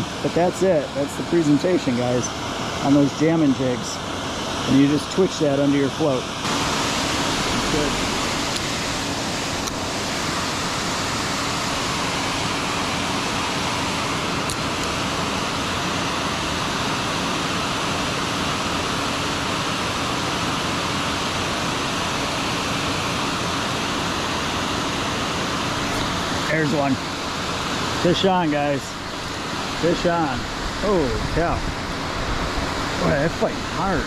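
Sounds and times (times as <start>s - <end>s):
water rushing below dam: 0.0s - 34.0s.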